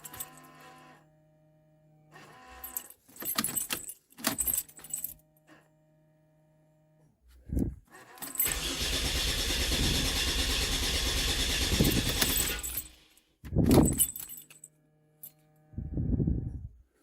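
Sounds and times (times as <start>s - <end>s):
engine cranking on starter: 8.2s - 14.1s.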